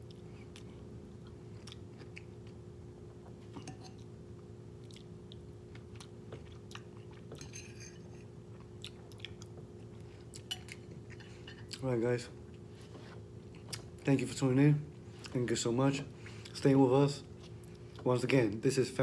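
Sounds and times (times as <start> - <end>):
person chewing soft food: 0.0 - 7.5, 8.2 - 11.9, 12.5 - 14.1, 17.2 - 18.1
faint steady hum: 0.0 - 19.0.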